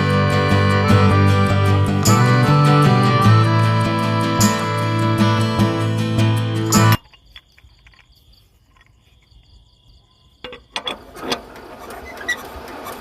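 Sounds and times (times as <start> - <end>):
music: 0.0 - 7.0
insects chirping: 4.9 - 12.6
sharp clicks and knocks: 10.4 - 11.4.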